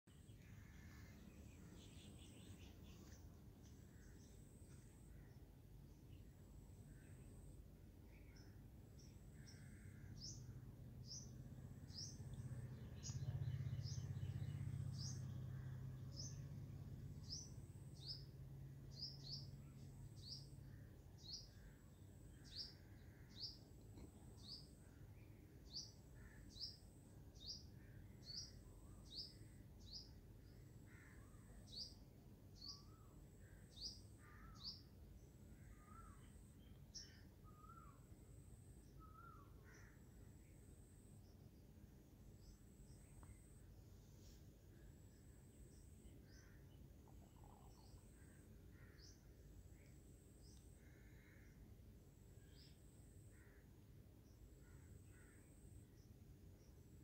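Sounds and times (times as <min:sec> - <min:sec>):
low hum: 0:00.1 - 0:25.7
small bird chirping: 0:00.1 - 0:38.1, 0:38.8 - 0:40.6, 0:45.0 - 0:51.6
lower wavering bird calls: 0:00.2 - 0:05.5, 0:30.8 - 0:38.1, 0:38.9 - 0:40.2, 0:44.8 - 0:51.7.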